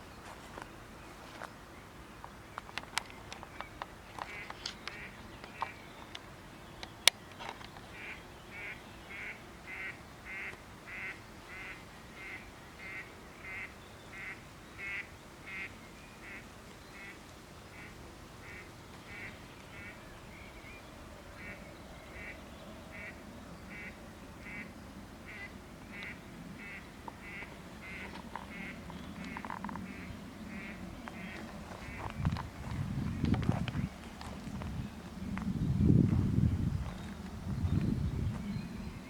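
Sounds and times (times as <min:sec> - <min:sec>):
duck quacking: 0:08.0 - 0:16.4, 0:23.7 - 0:24.7, 0:25.3 - 0:32.1.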